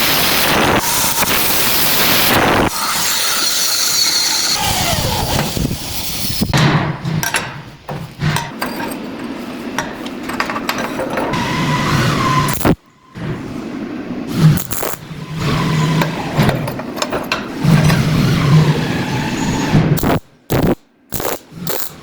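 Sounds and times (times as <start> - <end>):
power tool running: 0.0 - 6.5, 14.5 - 16.7, 20.0 - 22.0.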